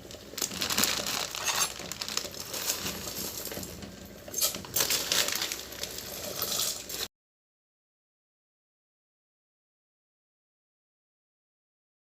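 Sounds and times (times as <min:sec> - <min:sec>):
dry pasta rattling in plastic packet: 0:00.0 - 0:07.1
plastic crinkling: 0:00.0 - 0:07.1.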